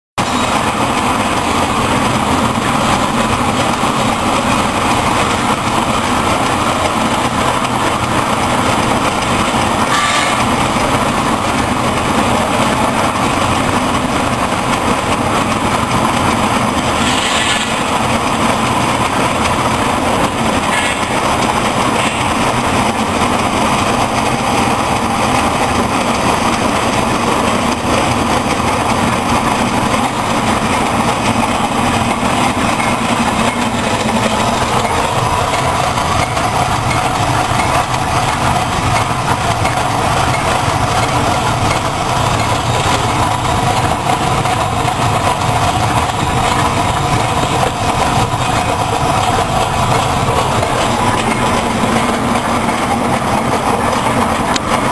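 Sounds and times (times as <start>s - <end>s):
grinder machine humming: 17.9s - 54.9s.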